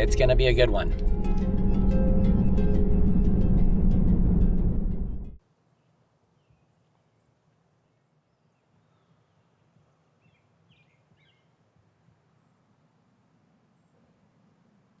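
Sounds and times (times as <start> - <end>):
faint bird chirps: 5.7 - 11.6.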